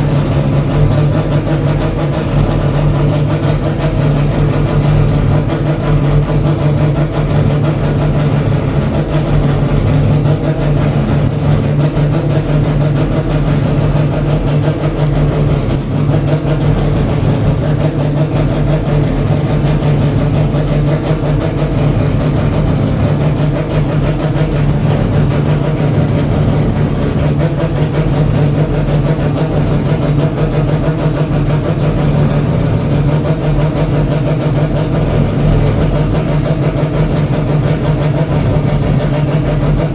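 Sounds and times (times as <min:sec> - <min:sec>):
rotary engine idling: 0:00.0 - 0:39.9.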